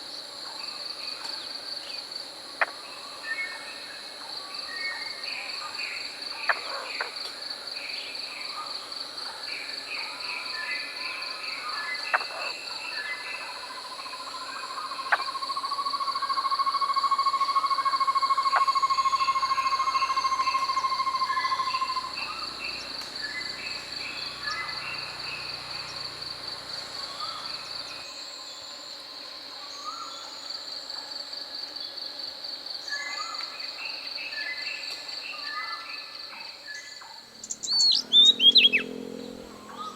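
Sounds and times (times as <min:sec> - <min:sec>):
fast-pulsing insect trill: 0:10.9 - 0:30.8
forest birds calling: 0:17.3 - 0:28.1, 0:32.9 - 0:39.9.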